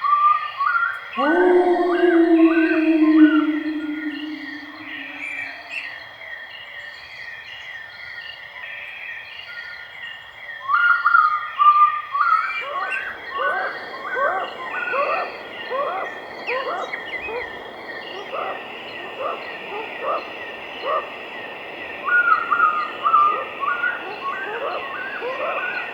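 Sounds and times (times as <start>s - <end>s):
bird call of rising notes: 1.2s - 5.8s
insect-like drone: 1.2s - 5.9s.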